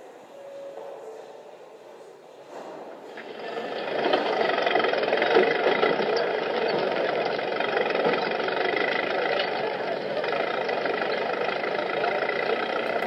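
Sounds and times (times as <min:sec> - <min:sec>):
old car engines running: 0:03.0 - 0:13.0
traffic noise: 0:03.0 - 0:13.0.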